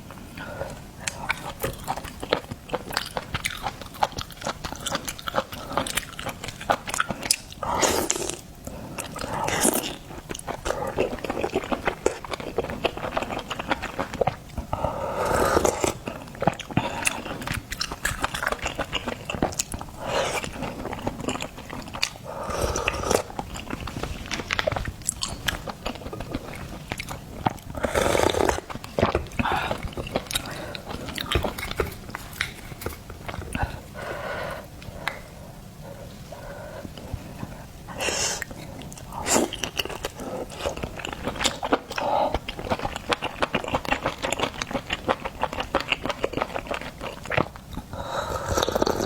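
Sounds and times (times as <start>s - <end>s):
wet chewing: 0.4s - 34.2s, 34.8s - 49.0s
loud slurping: 27.8s - 28.7s.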